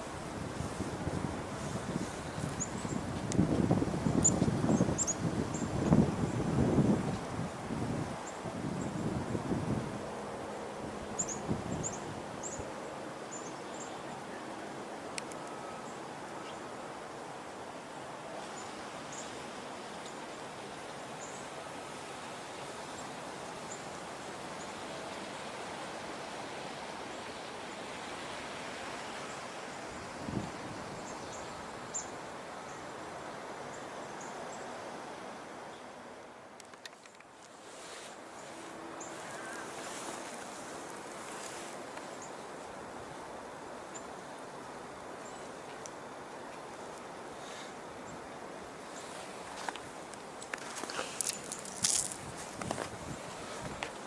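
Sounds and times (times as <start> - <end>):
small birds chirping: 4.0 - 6.0.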